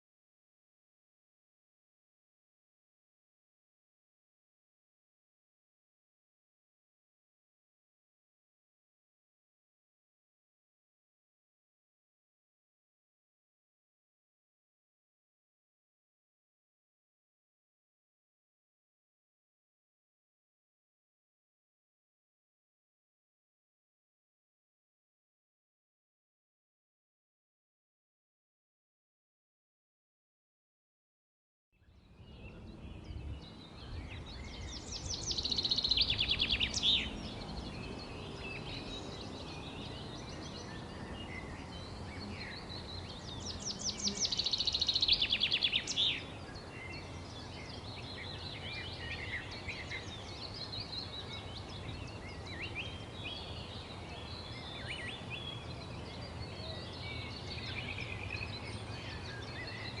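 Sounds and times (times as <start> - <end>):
songbirds chirping: 31.8 - 60.0.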